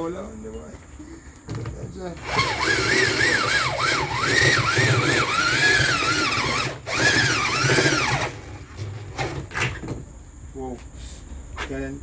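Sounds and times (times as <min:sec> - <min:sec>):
electric drill whining: 0:02.2 - 0:08.4.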